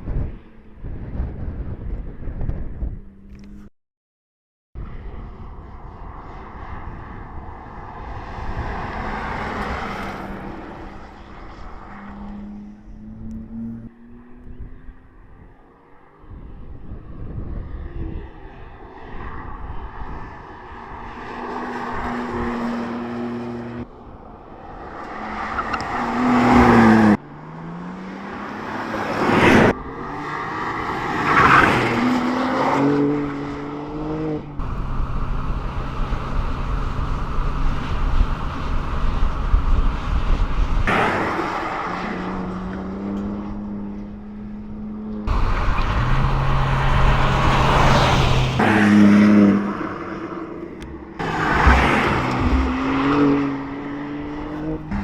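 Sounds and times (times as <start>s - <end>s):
car engine revving: 24.8s - 55.0s.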